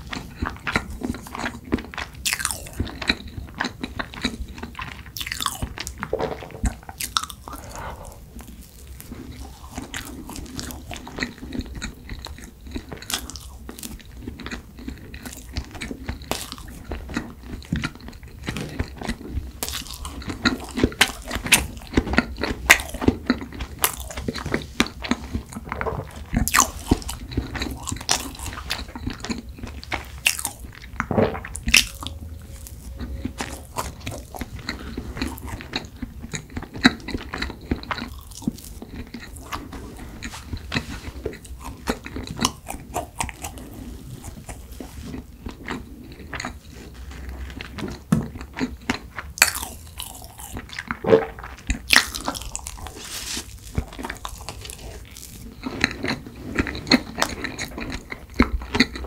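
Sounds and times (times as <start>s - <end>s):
close chewing and biting: 0.0s - 59.0s
wet mouth sounds: 5.1s - 12.0s, 22.6s - 37.2s.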